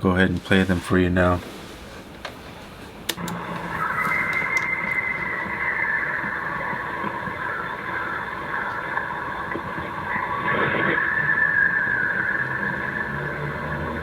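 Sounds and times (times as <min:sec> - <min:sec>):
car noise: 0:03.1 - 0:14.0
wavering high tone: 0:03.2 - 0:14.0
hiss: 0:03.4 - 0:14.0.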